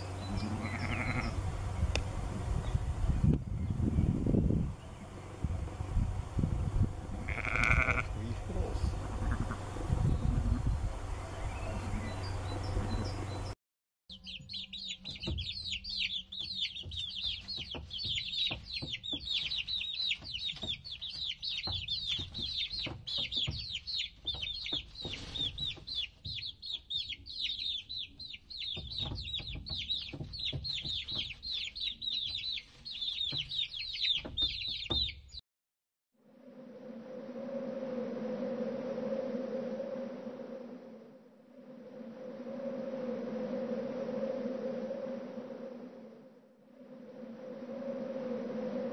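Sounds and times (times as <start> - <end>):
chicks peeping: 11.7 - 35.4.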